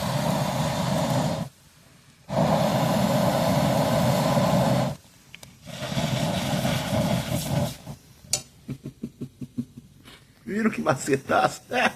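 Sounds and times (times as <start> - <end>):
person blowing through a tube: 0.0 - 1.5, 2.3 - 5.0, 5.6 - 8.0.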